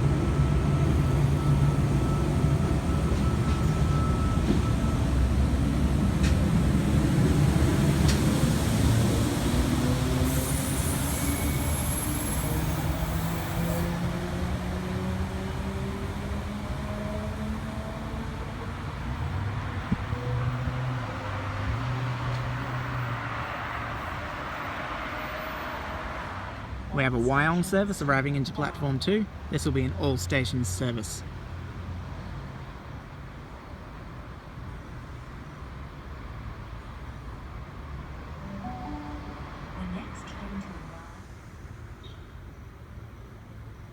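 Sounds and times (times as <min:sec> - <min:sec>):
train rumble: 0:00.0 - 0:13.8
train hiss: 0:08.0 - 0:13.9.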